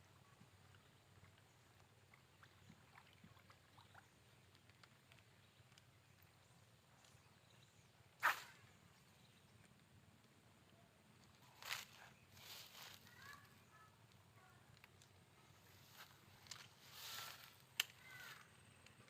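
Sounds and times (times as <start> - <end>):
brief sharp noise: 8.2 - 8.6.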